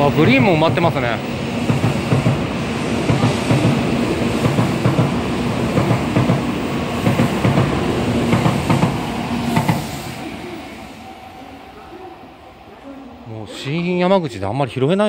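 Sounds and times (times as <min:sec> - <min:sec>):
train wheels rumbling on rail: 0:00.0 - 0:11.3.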